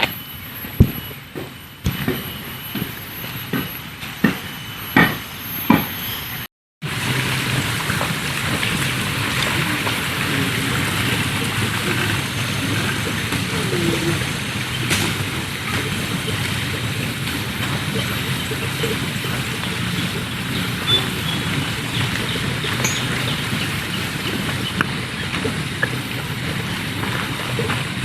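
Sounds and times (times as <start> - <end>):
rushing water: 6.8 - 28.0.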